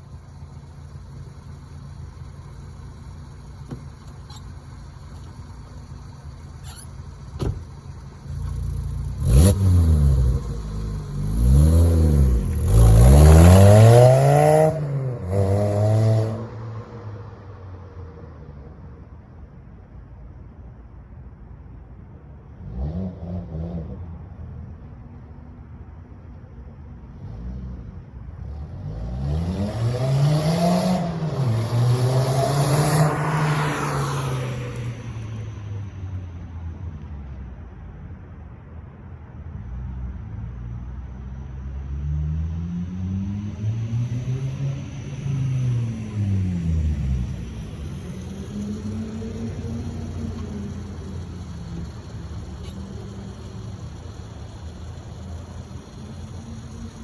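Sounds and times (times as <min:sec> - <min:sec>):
car engine revving: 0:00.0 - 0:17.0, 0:28.4 - 0:36.2, 0:41.9 - 0:57.0.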